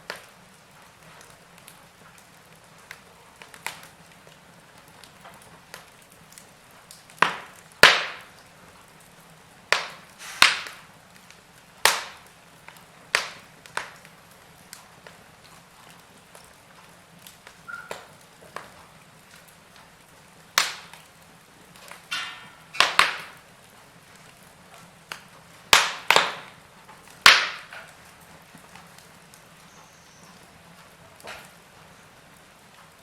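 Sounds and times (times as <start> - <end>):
wood fire crackling: 0.0 - 33.0
short hiss: 10.2 - 10.8.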